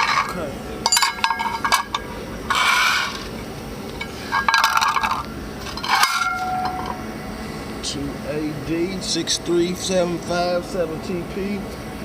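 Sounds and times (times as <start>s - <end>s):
metal plates scraping and clinking: 0.0s - 7.0s
metal ringing tone: 0.0s - 7.4s.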